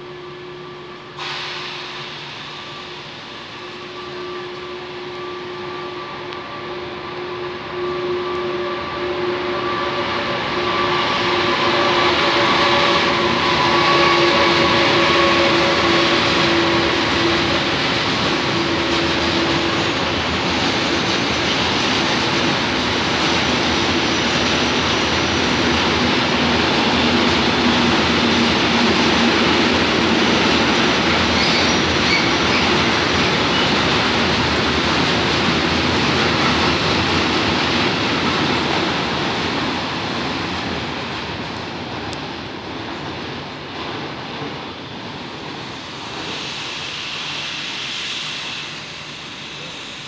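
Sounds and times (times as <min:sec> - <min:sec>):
train wheels rumbling on rails: 0:00.0 - 0:50.0
wheel squeal: 0:31.2 - 0:33.8.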